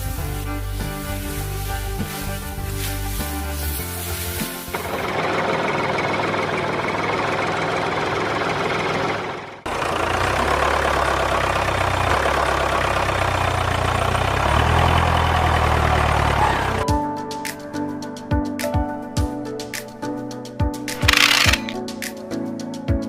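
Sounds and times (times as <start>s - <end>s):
small motor-driven machine running: 21.0s - 21.8s.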